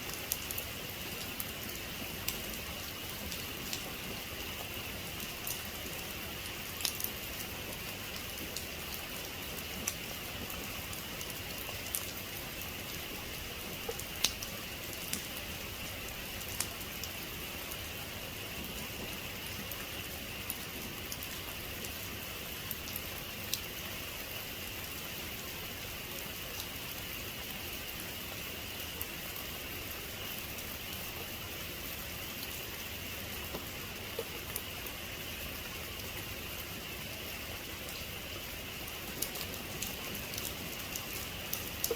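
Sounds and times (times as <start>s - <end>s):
raindrops ticking: 13.7s - 15.5s, 33.5s - 34.7s, 38.7s - 41.9s
heavy rain falling: 31.8s - 41.9s.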